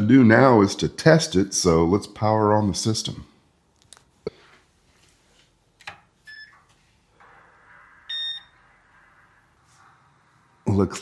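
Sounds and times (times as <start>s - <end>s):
steady electronic hum: 4.6s - 11.0s
loud electronic beep: 7.2s - 9.6s.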